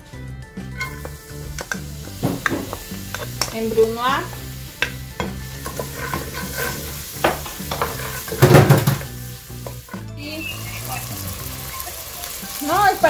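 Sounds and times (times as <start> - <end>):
onion sizzling in fat: 0.6 - 13.0
wooden spoon scraping a pot: 0.7 - 10.0.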